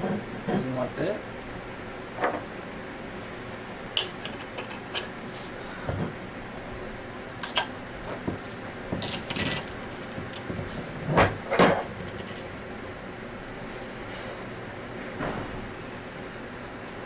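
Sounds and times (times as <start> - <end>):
metal parts clinking: 7.4 - 10.5, 11.7 - 12.6.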